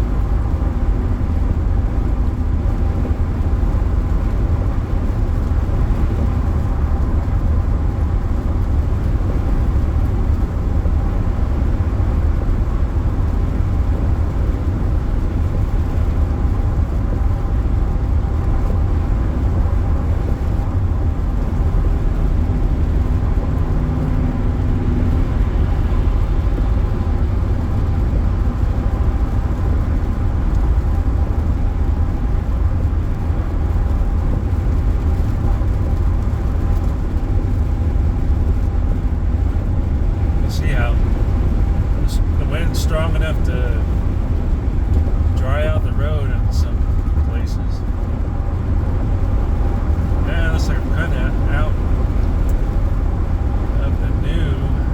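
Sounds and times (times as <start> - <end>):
car road noise rumble: 0.0 - 54.9
faint steady hum: 36.2 - 54.9.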